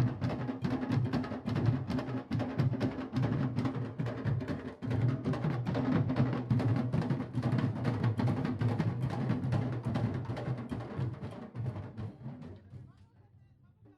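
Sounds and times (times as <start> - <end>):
drum ensemble playing rhythm: 0.0 - 12.8.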